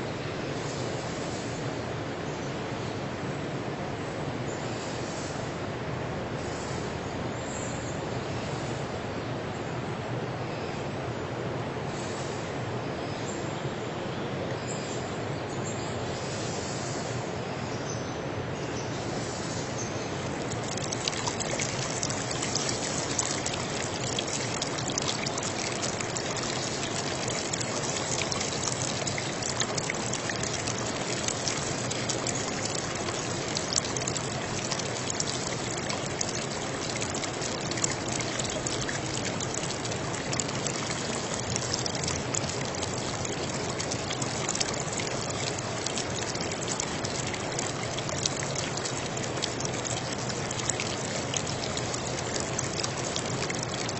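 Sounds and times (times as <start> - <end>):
running water trickling: 19.1 - 53.9.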